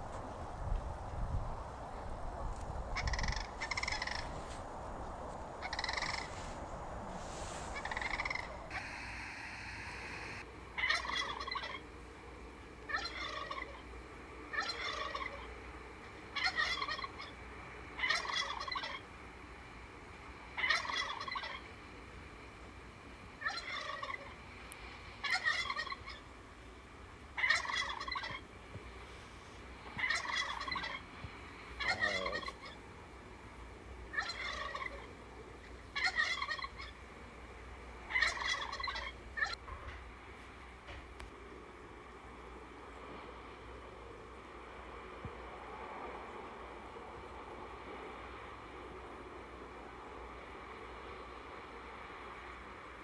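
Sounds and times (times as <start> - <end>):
cranes calling: 2.9 - 4.8, 5.4 - 12.0, 12.8 - 19.1, 20.5 - 21.8, 23.3 - 26.4, 27.4 - 32.9, 34.0 - 37.0, 38.0 - 40.0.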